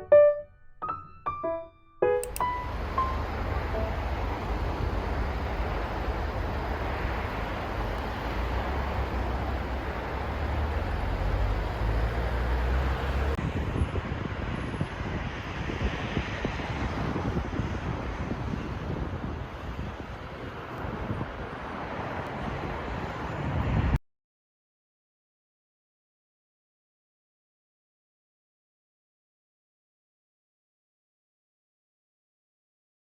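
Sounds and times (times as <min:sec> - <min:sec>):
road traffic rumble and hiss: 0:02.2 - 0:24.0.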